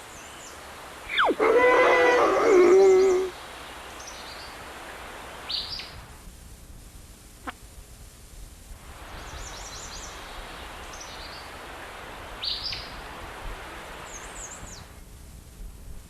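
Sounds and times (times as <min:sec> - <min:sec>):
birds chirping: 0:01.1 - 0:03.3
falling whistle: 0:01.1 - 0:03.3.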